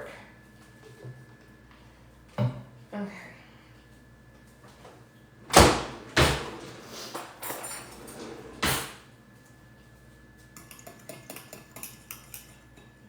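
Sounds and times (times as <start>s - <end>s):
fork whisking in bowl: 10.6s - 12.9s.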